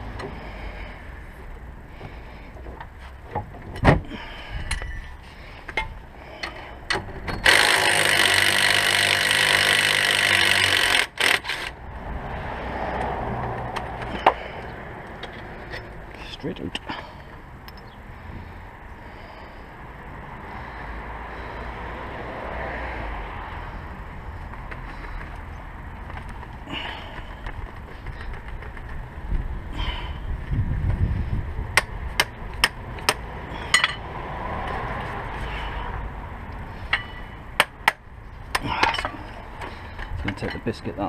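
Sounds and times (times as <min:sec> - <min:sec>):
hand tools clinking on metal: 0:33.6 - 0:34.0, 0:38.6 - 0:39.3, 0:40.0 - 0:40.9.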